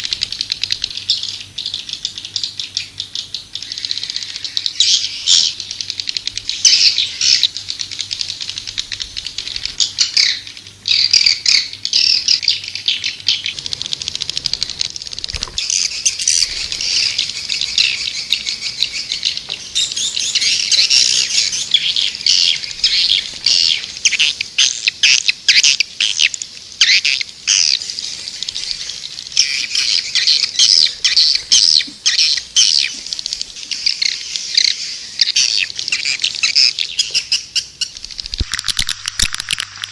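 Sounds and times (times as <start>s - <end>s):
swiftlets twittering: 37.8s - 39.9s.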